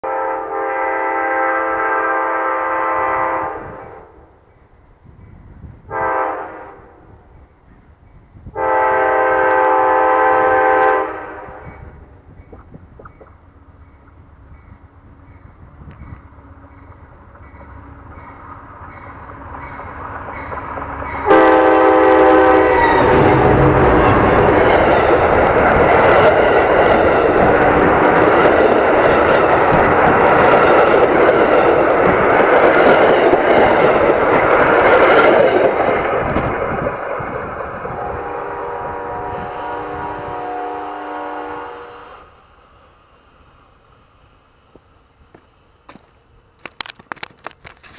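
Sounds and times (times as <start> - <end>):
locomotive horn blasting: 0.0 - 4.1, 5.9 - 7.0, 8.5 - 11.7, 21.2 - 25.2, 37.8 - 42.3
train rumble: 0.0 - 47.9
train wheel clatter: 22.6 - 37.9, 44.7 - 47.9.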